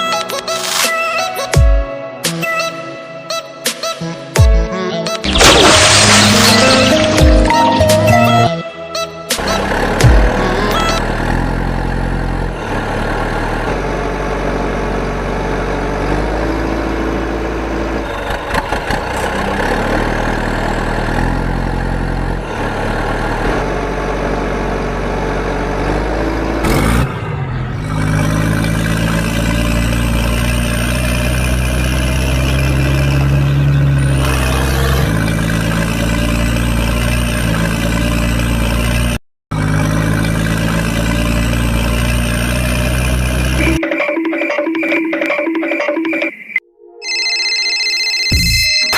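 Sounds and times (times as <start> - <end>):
cartoon tractor engine: 2.4 - 48.9.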